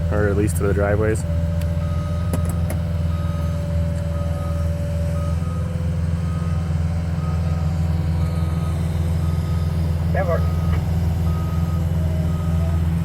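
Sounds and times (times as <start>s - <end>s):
diesel engine running: 0.0s - 13.0s
steady whine: 0.0s - 13.0s
backup alarm beeping: 1.8s - 12.8s.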